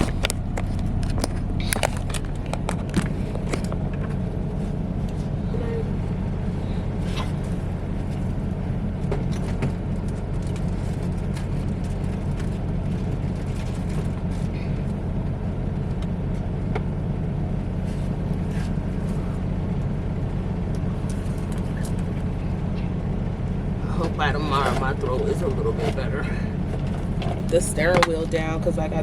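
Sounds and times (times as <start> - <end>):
faint clicks and rattles: 0.0 - 15.1
diesel engine humming: 0.0 - 29.0.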